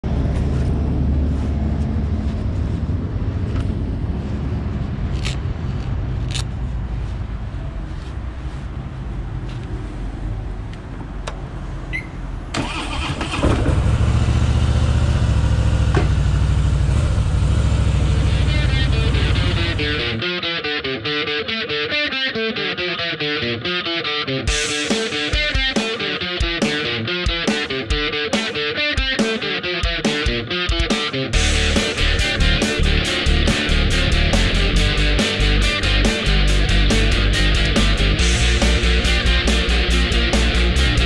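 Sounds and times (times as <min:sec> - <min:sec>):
gloves clicking and rustling: 0:05.0 - 0:07.2
motorcycle engine idling: 0:13.6 - 0:20.0.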